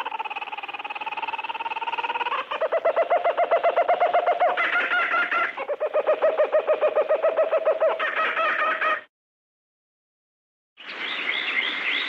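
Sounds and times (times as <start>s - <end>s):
higher-pitched bird calls: 0.0s - 8.8s
birds trilling low chirps: 0.0s - 9.0s.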